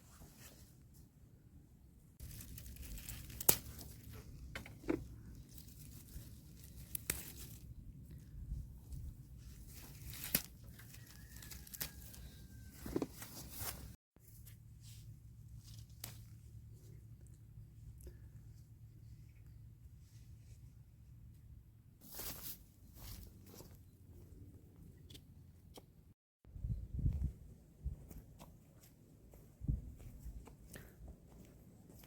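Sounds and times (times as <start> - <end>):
rustling and tearing: 2.2 - 4.4, 5.2 - 7.7, 9.4 - 14.0.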